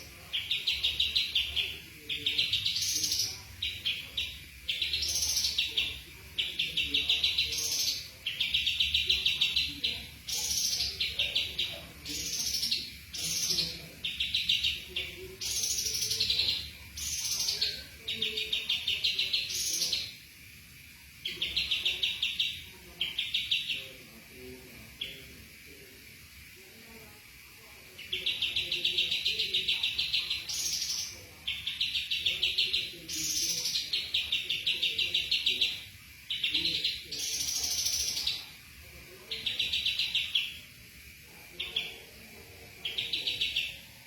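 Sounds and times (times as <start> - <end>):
songbird trilling: 42.8 - 43.9.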